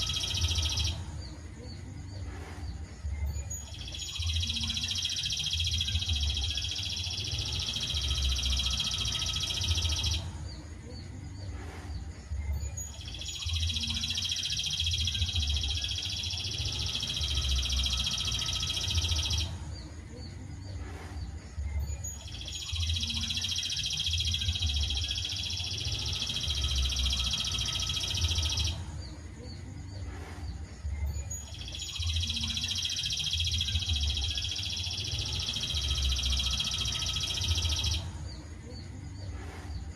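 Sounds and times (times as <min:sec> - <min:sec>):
songbird trilling: 0:03.4 - 0:10.2, 0:12.7 - 0:19.5, 0:21.9 - 0:28.8, 0:31.2 - 0:38.0.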